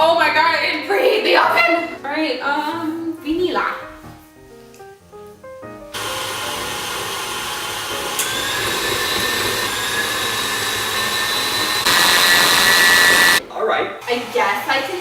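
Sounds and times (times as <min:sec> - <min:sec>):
electric mixer motor whine: 0:06.0 - 0:13.4.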